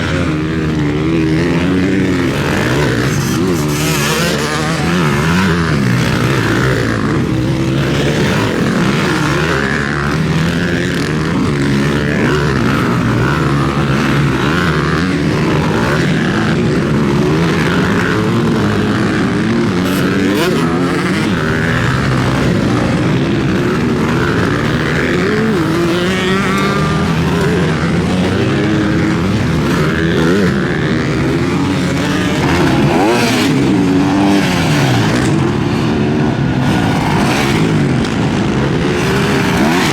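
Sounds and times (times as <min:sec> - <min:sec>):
motorbike engines revving: 0:00.0 - 0:39.9.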